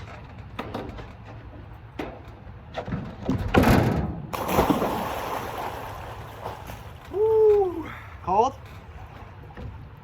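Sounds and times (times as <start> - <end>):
loud splash into pool: 4.3 - 7.1
water churning and sloshing: 4.3 - 10.0.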